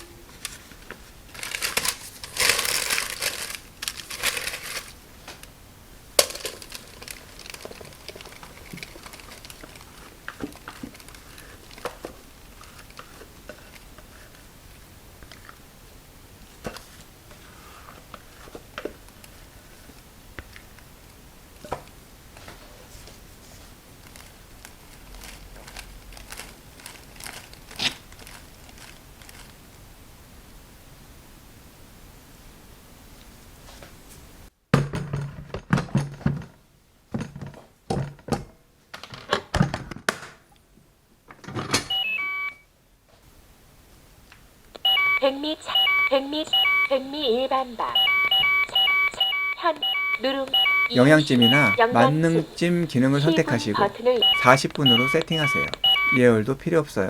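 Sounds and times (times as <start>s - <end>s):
rice cooker electronic beep melody: 41.9s - 42.6s, 44.8s - 47.1s, 47.9s - 52.6s, 53.2s - 56.3s.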